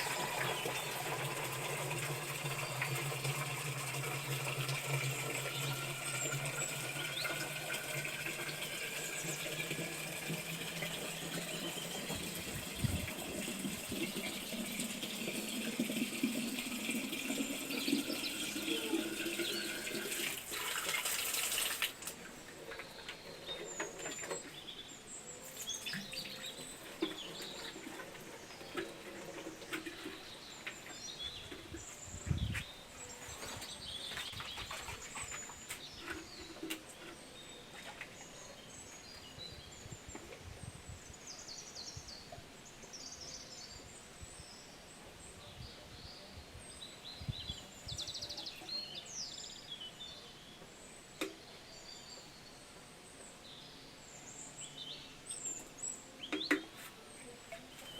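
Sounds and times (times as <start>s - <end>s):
small birds chirping: 22.0s - 57.9s.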